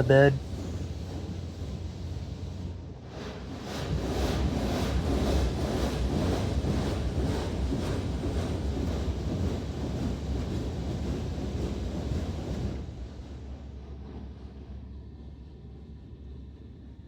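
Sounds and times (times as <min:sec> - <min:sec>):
water jets spraying on a truck: 0:00.0 - 0:06.1.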